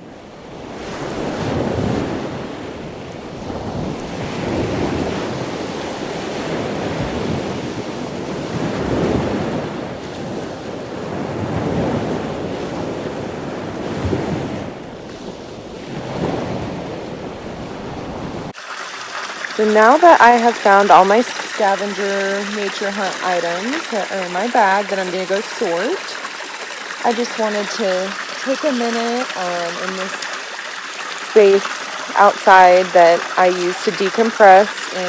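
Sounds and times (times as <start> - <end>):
wind buffeting microphone: 0.4 - 18.6
water rushing in pond: 18.4 - 35.0.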